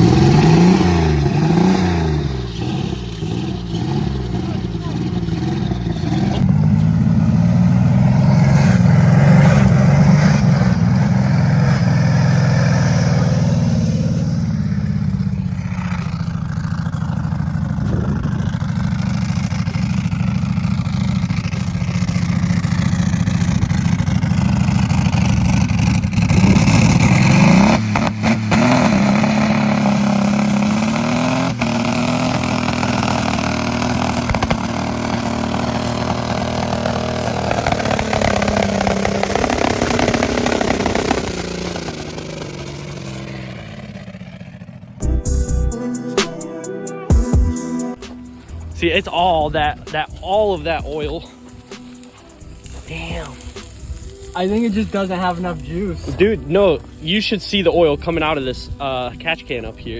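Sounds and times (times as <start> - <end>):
car engine at high revs: 0.0 - 45.1.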